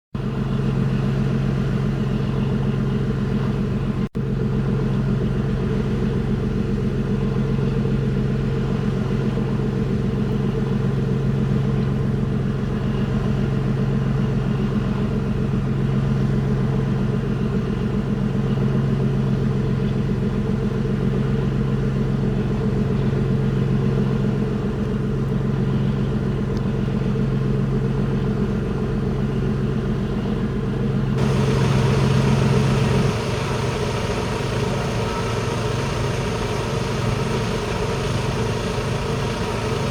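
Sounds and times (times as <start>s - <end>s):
boat engine humming: 0.2s - 39.9s.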